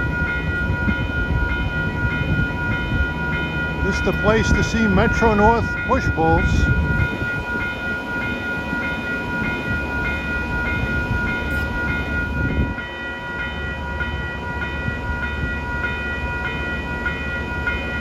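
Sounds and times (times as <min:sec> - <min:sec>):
low train rumble: 0:00.0 - 0:18.0
railroad crossing bell ringing: 0:00.0 - 0:18.0.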